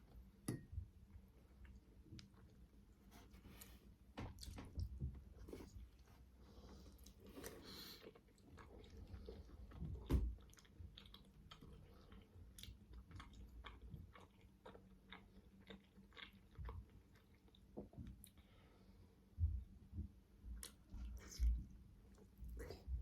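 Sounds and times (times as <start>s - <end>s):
chewing and biting dumplings: 6.9s - 18.4s.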